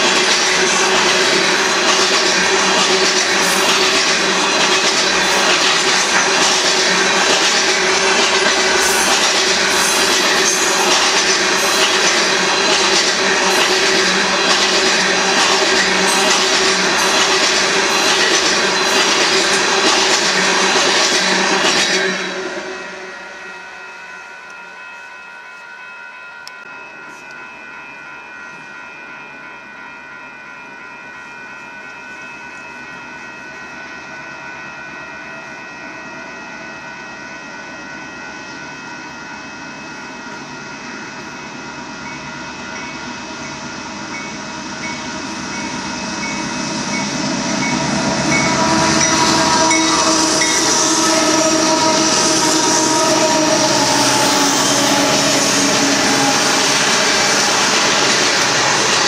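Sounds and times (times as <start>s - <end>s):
train wheels squealing: 0.0s - 23.7s, 34.0s - 59.0s
freight train wheels rumbling: 0.0s - 23.8s, 37.2s - 59.0s.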